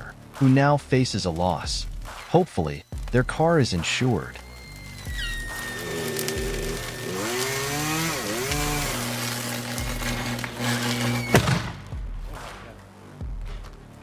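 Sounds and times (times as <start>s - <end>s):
chainsaw engine revving: 4.8s - 11.8s
sharp crack: 5.5s - 12.8s.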